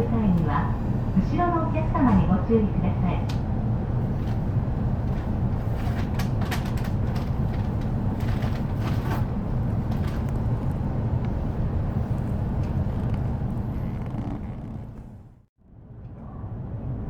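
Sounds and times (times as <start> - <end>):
train car low hum: 0.0 - 17.0.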